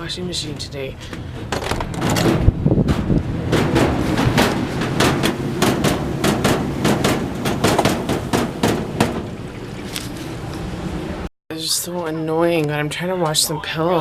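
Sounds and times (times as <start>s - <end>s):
low rumble: 1.1s - 11.3s
washing machine banging: 1.2s - 9.5s.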